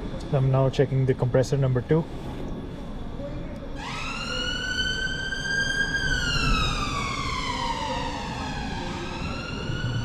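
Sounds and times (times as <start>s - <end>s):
emergency siren wailing: 3.8s - 10.0s.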